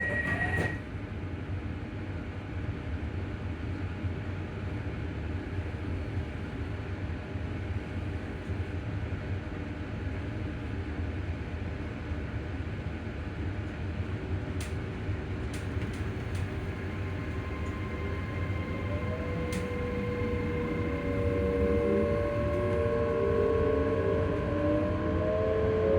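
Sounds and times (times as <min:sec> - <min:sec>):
brief high beep: 0:00.0 - 0:00.8
train running rumble: 0:09.8 - 0:25.9.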